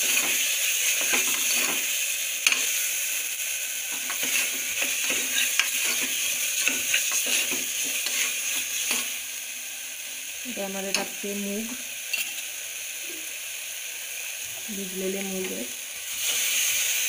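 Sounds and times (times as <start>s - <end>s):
spoon stirring and scraping pot: 0.0s - 2.8s, 3.9s - 9.2s, 12.1s - 12.5s
paste sizzling in oil: 0.0s - 17.0s.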